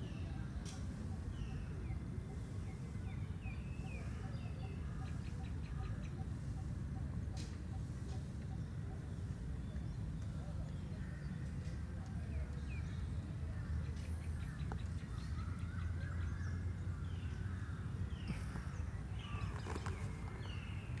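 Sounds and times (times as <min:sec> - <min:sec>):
birds chirping: 0:12.3 - 0:21.0.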